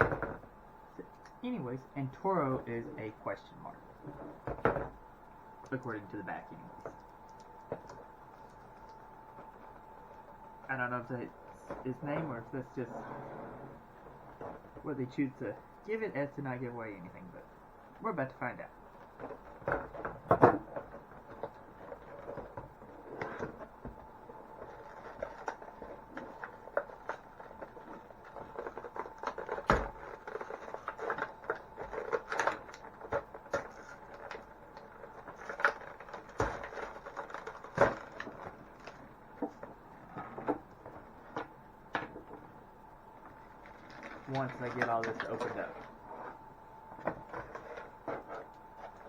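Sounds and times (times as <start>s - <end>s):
plastic and cardboard packaging crinkling: 5.7s - 12.8s, 18.9s - 41.5s, 43.1s - 49.0s.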